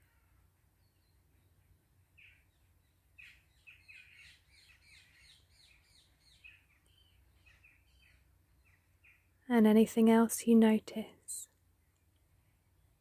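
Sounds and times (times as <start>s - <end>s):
faint bird chirps: 0.0s - 9.4s.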